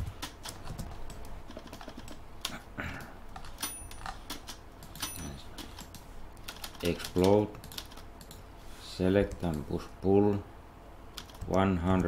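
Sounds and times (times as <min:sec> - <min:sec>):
keyboard and mouse clicks: 0:00.0 - 0:02.6, 0:03.3 - 0:08.4, 0:11.1 - 0:12.0.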